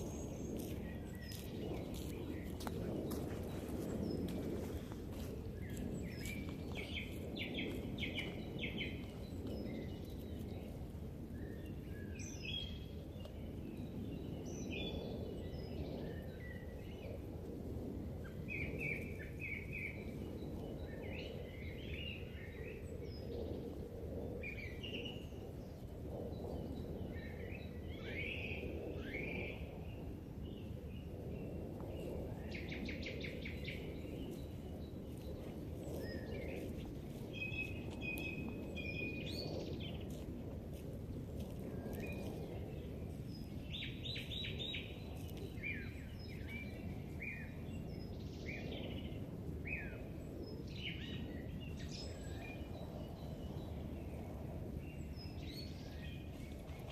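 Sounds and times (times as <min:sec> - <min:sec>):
songbirds singing and calling: 0:00.0 - 0:17.3, 0:18.2 - 0:40.8, 0:41.4 - 0:56.9.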